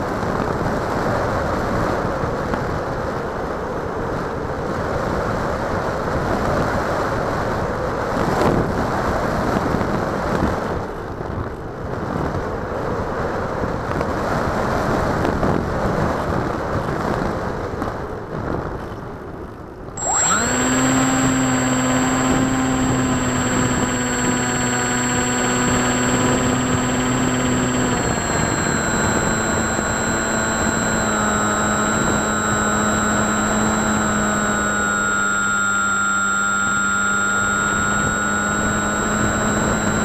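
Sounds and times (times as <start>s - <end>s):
wind rushing over microphone: 0.0s - 40.0s
model plane motor whine: 20.0s - 40.0s.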